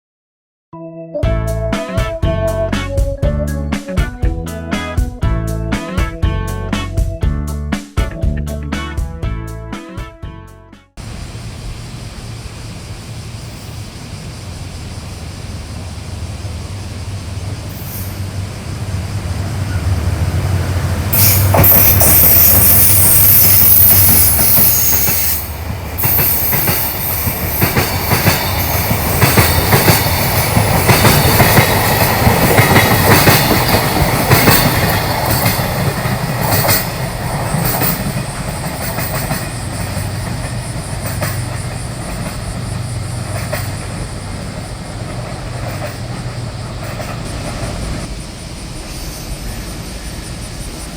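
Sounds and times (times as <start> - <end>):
wheels clicking over rail joints: 11.0 - 48.2
locomotive engine hum: 11.0 - 50.9.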